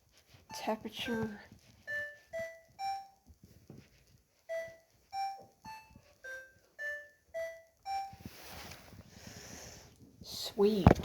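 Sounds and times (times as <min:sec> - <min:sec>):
washing machine beeping tune: 0:00.4 - 0:03.3, 0:03.9 - 0:08.5.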